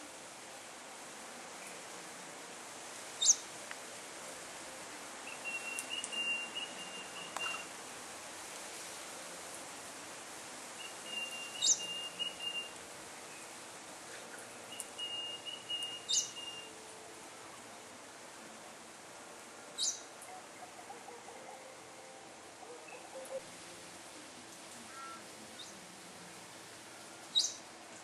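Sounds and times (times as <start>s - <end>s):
faint steady hiss: 0.0s - 28.0s
bird call with rattling trill: 11.1s - 12.7s.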